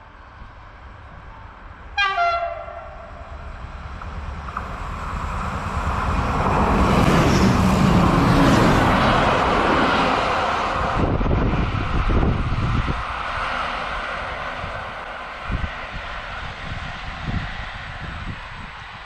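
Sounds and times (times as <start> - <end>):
train rumble approaching: 0.0 - 19.0
train horn blast: 2.0 - 3.3.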